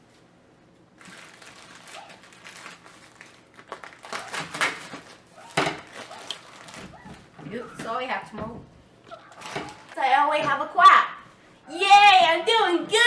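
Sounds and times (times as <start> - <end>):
paper rustling and crinkling: 1.0 - 7.4, 9.3 - 10.0.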